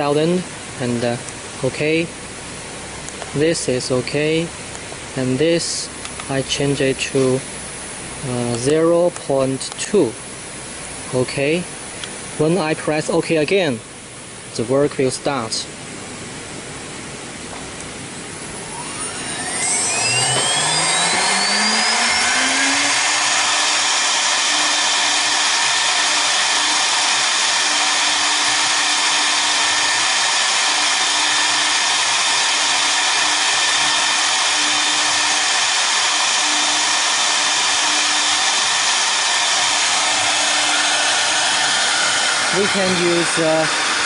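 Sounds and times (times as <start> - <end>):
spindle motors whining: 18.5 - 44.0.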